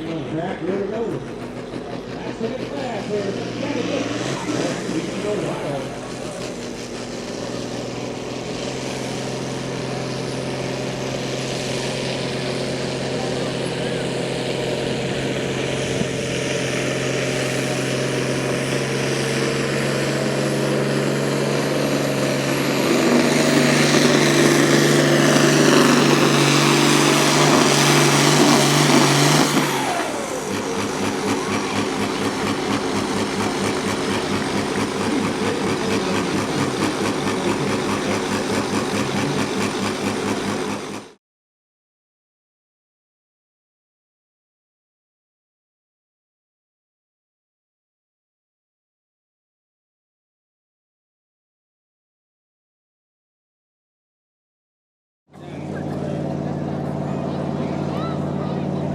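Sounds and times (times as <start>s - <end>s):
pulling vehicle engine roaring: 0.0s - 41.2s, 55.3s - 58.9s.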